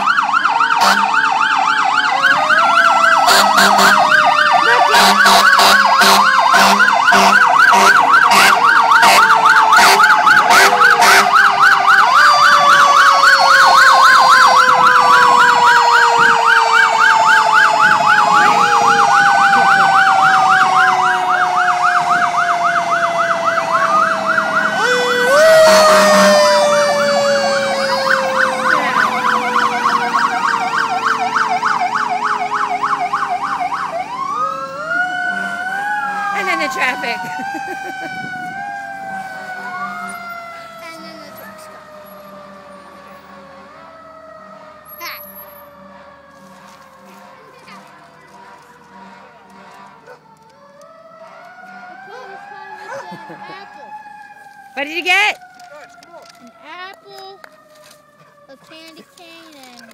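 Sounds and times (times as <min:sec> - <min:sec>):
emergency sirens yelping and wailing: 0:00.0 - 0:59.9
horn blasts: 0:00.8 - 0:01.2, 0:03.1 - 0:11.4, 0:47.8 - 0:50.2.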